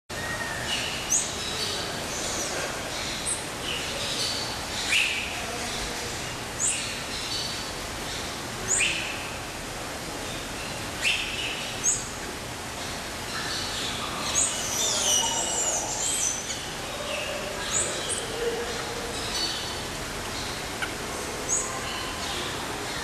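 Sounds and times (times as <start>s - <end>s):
background hiss: 0.2s - 23.0s.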